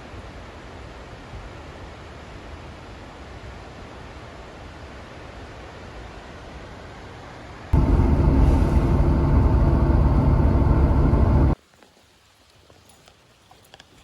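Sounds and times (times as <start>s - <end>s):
road noise: 7.8s - 11.6s
vehicle engine rumble: 7.8s - 11.6s.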